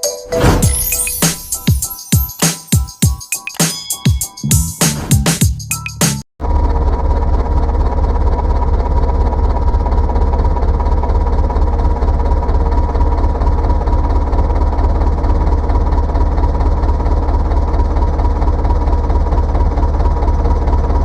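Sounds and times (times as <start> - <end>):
diesel engine idling: 6.4 - 21.0.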